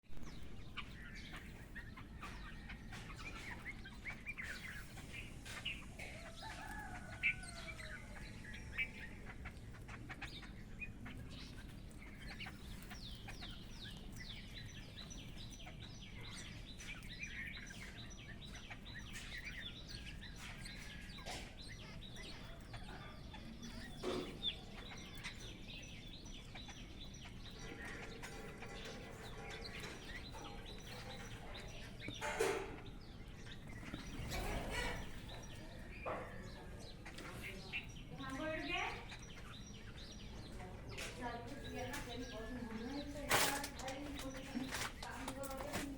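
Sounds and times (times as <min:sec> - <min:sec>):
small birds chirping: 0:00.0 - 0:45.9
chickens clucking: 0:00.2 - 0:45.9.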